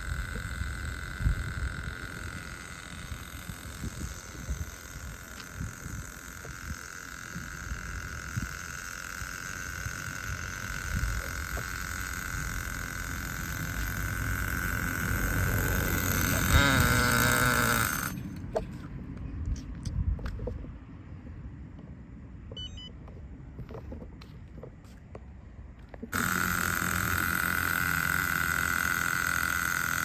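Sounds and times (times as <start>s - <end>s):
small engine high revs whining: 0.0s - 18.9s, 26.1s - 30.0s.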